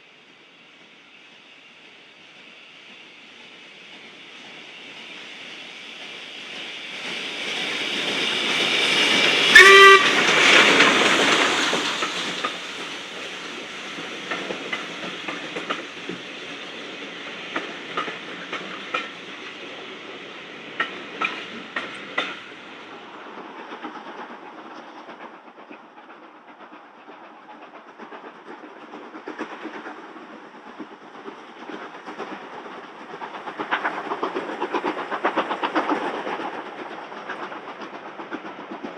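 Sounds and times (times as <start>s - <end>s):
train passing: 0.0s - 38.9s
train horn toot: 9.5s - 10.5s
wheels clicking over rail joints: 17.2s - 19.6s, 20.7s - 22.6s.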